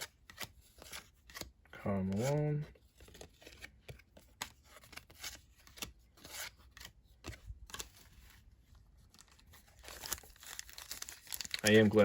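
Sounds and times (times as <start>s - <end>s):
trading cards flipping: 0.0s - 8.4s.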